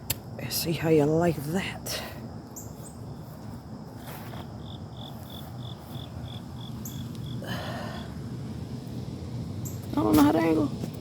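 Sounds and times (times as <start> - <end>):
cricket chirping: 0.0 - 11.0
scuffling noise: 2.7 - 6.1.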